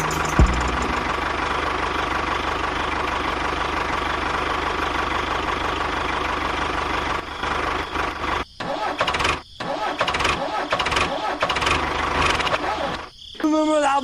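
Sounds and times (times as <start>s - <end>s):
small tractor motor running: 0.0s - 8.4s.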